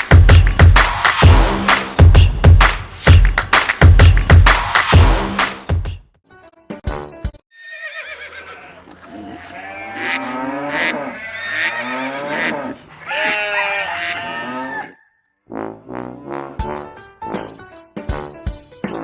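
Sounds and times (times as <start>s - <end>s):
background music: 0.0s - 7.3s, 15.5s - 19.0s
farm animals bleating: 7.6s - 15.0s.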